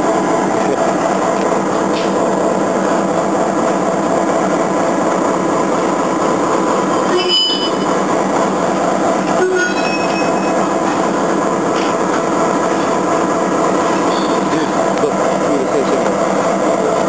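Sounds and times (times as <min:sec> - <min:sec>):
freight train rumbling: 0:00.0 - 0:17.0
high-pitched wheel squeal: 0:07.0 - 0:08.0, 0:09.3 - 0:10.9, 0:13.8 - 0:14.9.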